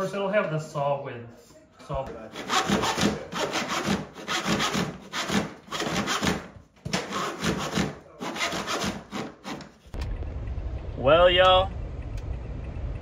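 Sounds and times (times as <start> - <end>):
handsaw cutting wood: 2.1 - 9.8.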